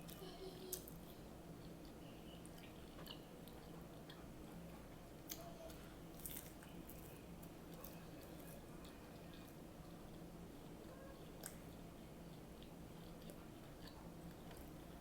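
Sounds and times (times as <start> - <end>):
faint chewing: 0.0 - 15.0
steady low hum: 0.0 - 15.0.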